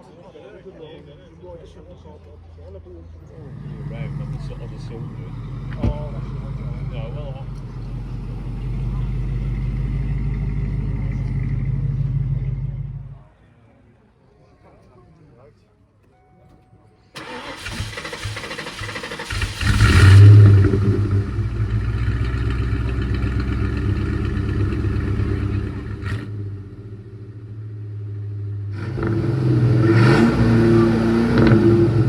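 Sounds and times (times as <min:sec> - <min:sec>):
car engine idling and revving: 0:03.2 - 0:13.2, 0:17.2 - 0:32.0.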